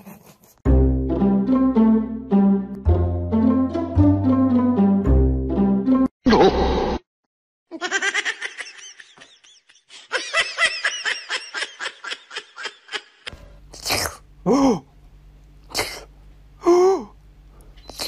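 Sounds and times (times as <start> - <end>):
high-pitched laughter: 7.7 - 13.3.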